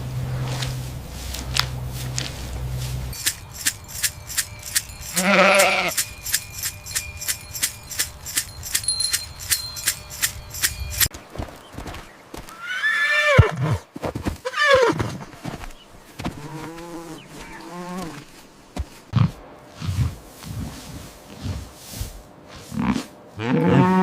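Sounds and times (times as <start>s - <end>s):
steady clicking: 3.1s - 11.1s.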